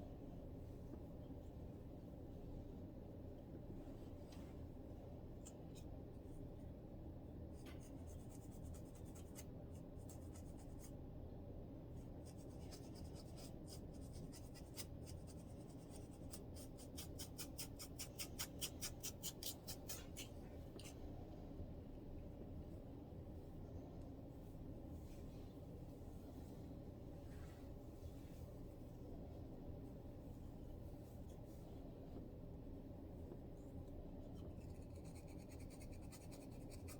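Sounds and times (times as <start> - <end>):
low steady hum: 0.0 - 36.9
fingers scratching scalp: 12.2 - 21.0, 34.4 - 36.9.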